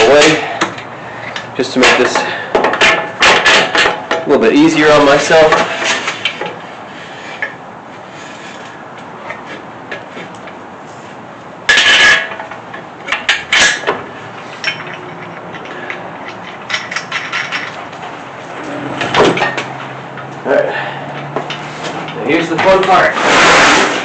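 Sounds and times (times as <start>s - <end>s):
metal scraping: 10.9s - 20.4s
engine hoist clanking: 11.7s - 24.0s.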